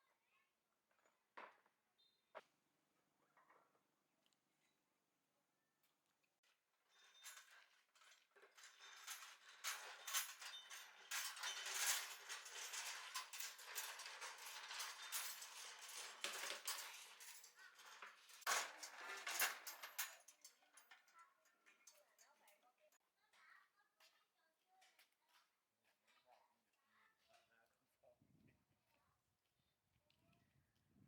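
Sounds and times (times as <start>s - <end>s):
metal parts clinking and rattling: 6.9s - 22.0s.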